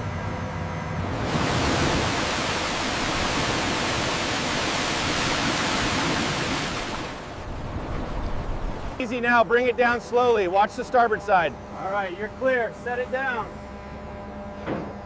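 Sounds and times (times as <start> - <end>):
water rushing and pouring: 1.0 - 9.0.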